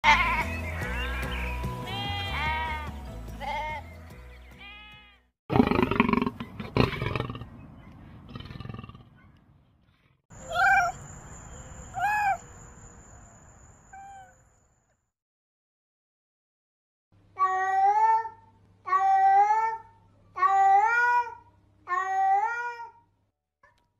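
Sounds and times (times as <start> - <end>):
sheep bleating: 0.0 - 0.9, 1.8 - 3.8, 4.6 - 5.2.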